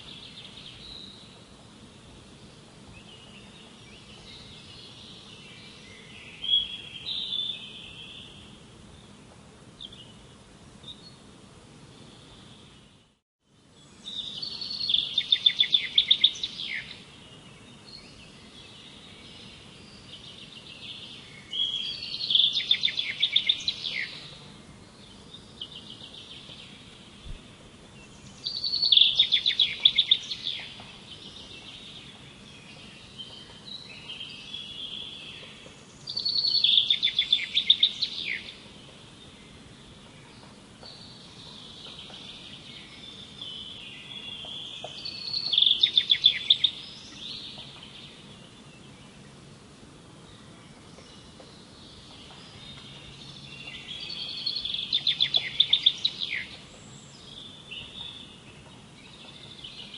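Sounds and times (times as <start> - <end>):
faint bird chirps: 13.8 - 49.3, 50.3 - 59.9.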